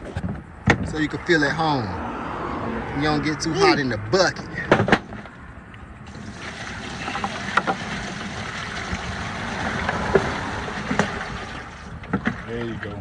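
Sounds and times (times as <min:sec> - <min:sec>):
water pouring into bucket: 0:06.1 - 0:13.0.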